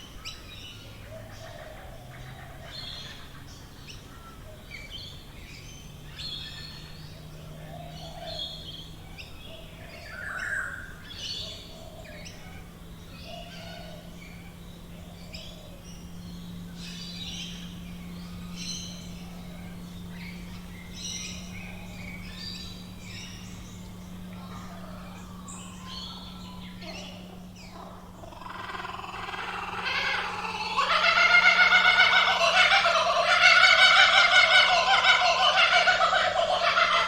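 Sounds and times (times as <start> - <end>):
faint low hum: 0.0 - 37.0
birds chirping and whistling: 4.7 - 37.0
kookaburra laughing call: 26.8 - 37.0.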